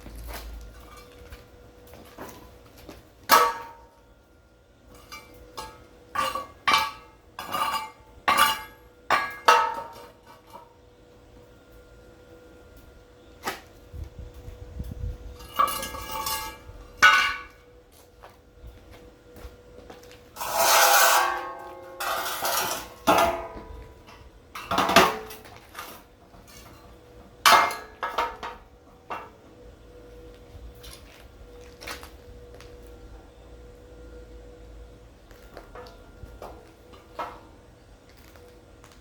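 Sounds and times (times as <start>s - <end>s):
long metal scrapes: 15.3s - 17.5s, 20.3s - 23.7s.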